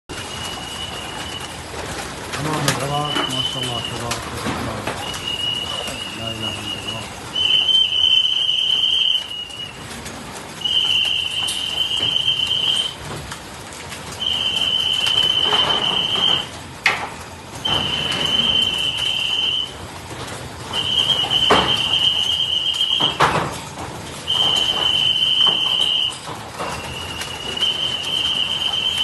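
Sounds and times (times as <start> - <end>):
electronic alarm beeping: 2.8 - 4.1, 5.0 - 9.7, 10.6 - 13.0, 14.2 - 16.5, 17.6 - 19.8, 20.8 - 23.4, 24.3 - 29.0.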